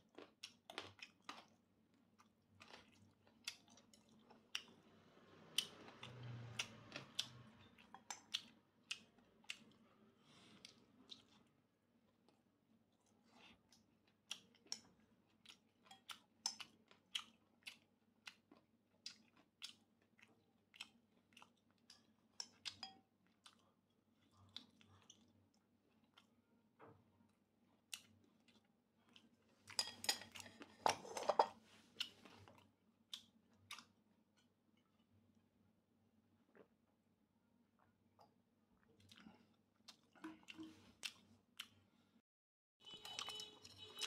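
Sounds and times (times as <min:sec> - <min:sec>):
close-up chewing with crunches: 0:00.0 - 0:04.8, 0:05.4 - 0:26.4, 0:38.8 - 0:41.8.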